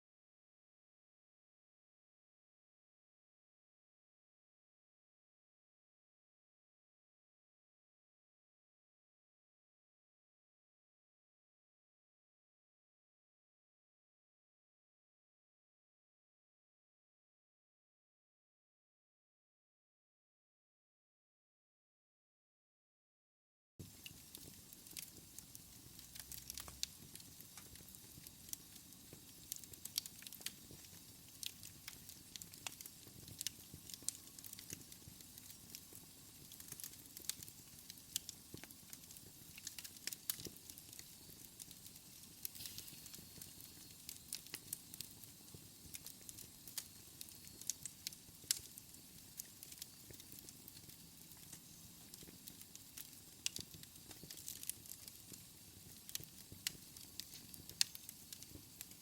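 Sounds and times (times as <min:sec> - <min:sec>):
wood fire crackling: 0:23.8 - 0:59.0.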